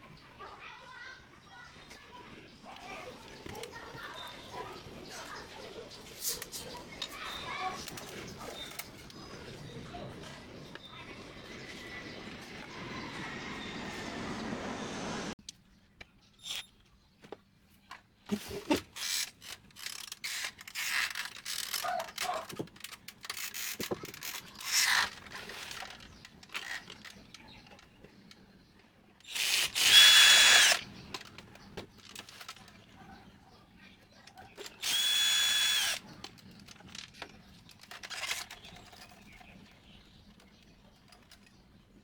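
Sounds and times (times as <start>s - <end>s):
printer parts clicking and rattling: 18.7s - 28.0s
electric screwdriver running: 29.3s - 30.8s, 34.8s - 36.0s.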